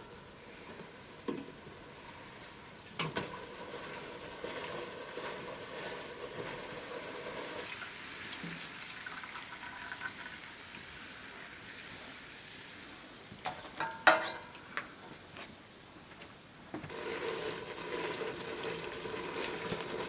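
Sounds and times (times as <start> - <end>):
food sizzling: 3.2 - 14.4, 16.9 - 20.0
clinks and knocks: 13.5 - 15.0.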